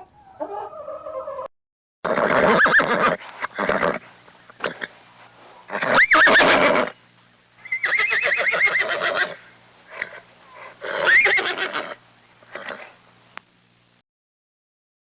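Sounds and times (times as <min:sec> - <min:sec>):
horse whinnying: 0:02.1 - 0:04.0, 0:04.6 - 0:04.9, 0:05.7 - 0:07.0, 0:07.6 - 0:12.9.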